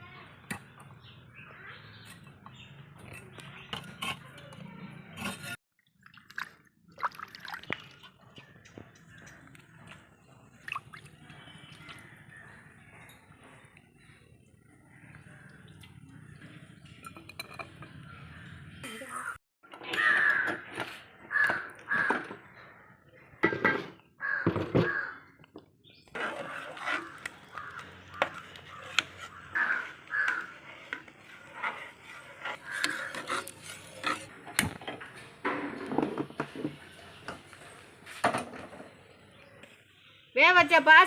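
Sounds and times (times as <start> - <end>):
crows cawing: 19.1 - 22.8, 24.2 - 25.4, 26.4 - 31.2, 32.4 - 33.4.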